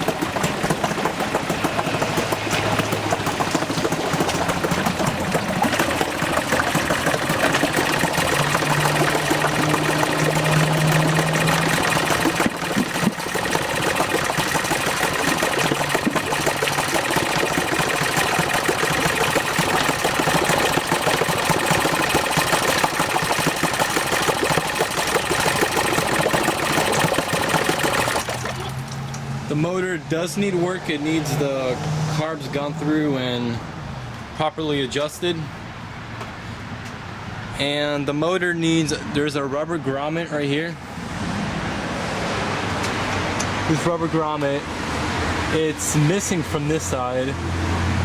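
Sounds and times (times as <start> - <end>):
outboard motor running: 0.0 - 29.5.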